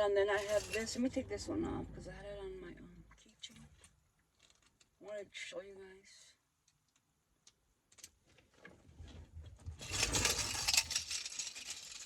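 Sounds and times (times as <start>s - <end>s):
handling rumble: 0.0s - 3.2s.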